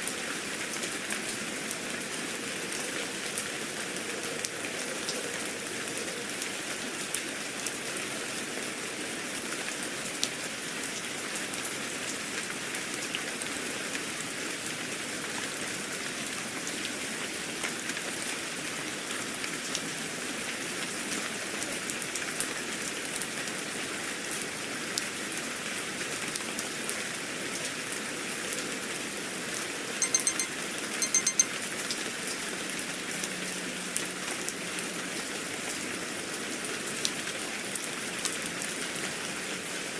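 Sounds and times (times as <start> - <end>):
steady rain: 0.0 - 29.8, 32.4 - 39.9
high electronic beeps: 30.0 - 31.5.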